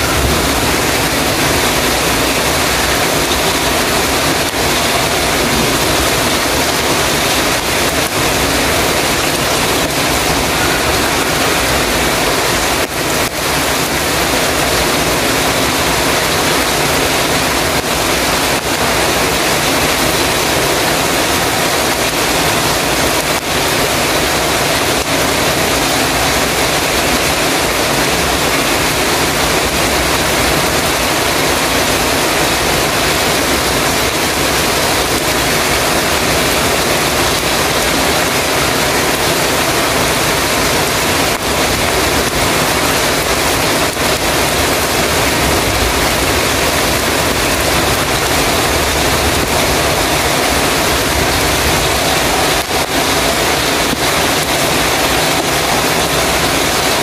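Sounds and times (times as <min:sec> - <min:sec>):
heavy rain on a metal roof: 0:00.0 - 0:57.0.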